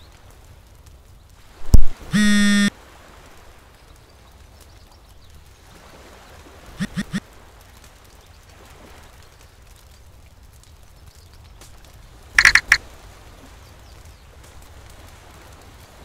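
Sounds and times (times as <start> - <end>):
phone electronic buzz: 1.7 - 2.7, 6.8 - 7.2, 12.4 - 12.8
phone short blips: 1.7 - 2.7, 6.8 - 7.2, 12.4 - 12.8.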